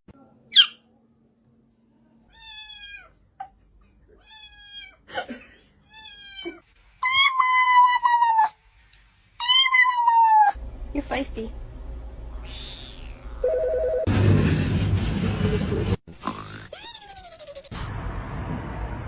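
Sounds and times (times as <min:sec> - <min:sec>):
cat meowing: 0:02.3 - 0:03.1, 0:04.2 - 0:05.0, 0:09.4 - 0:10.6, 0:12.4 - 0:13.4.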